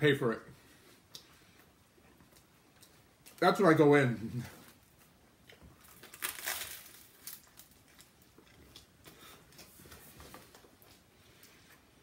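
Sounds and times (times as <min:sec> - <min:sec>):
crunching and chewing crispy food: 0:05.4 - 0:09.6.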